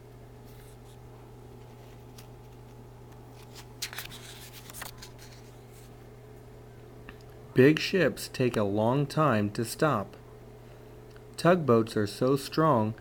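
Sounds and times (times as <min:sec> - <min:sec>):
low room hum: 0:00.0 - 0:13.0
paper page rustling: 0:00.4 - 0:06.0.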